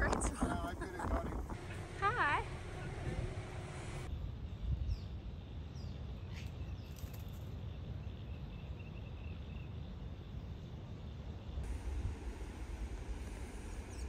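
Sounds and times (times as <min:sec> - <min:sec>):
steady low rumble: 0:00.0 - 0:05.0, 0:11.6 - 0:14.0.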